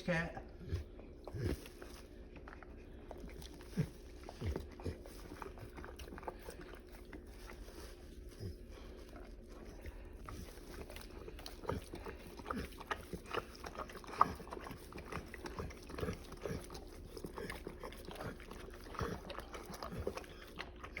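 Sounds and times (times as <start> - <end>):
dog sounds: 0.1 - 21.0.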